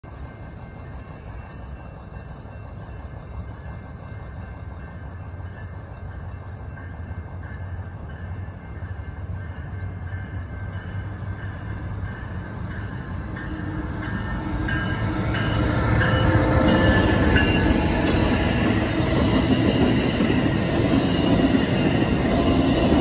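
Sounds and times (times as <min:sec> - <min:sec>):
rail rumble: 0:00.0 - 0:23.0
locomotive engine drone: 0:00.1 - 0:23.0
crossing signal ringing: 0:09.7 - 0:23.0.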